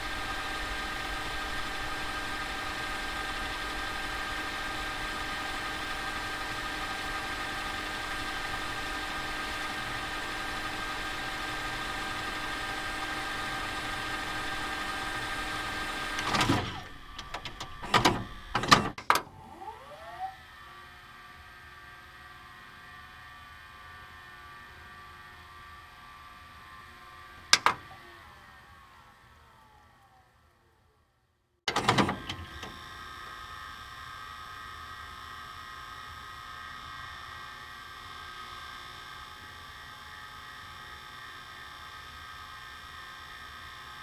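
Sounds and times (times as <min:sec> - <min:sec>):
machine humming: 0:00.1 - 0:20.4
clicks and clunks: 0:14.2 - 0:19.4, 0:27.4 - 0:28.0, 0:31.7 - 0:32.8.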